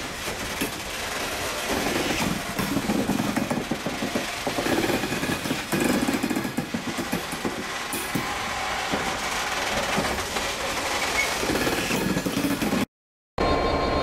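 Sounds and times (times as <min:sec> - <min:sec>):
freight wagons rattling and clanking: 0:00.0 - 0:12.9.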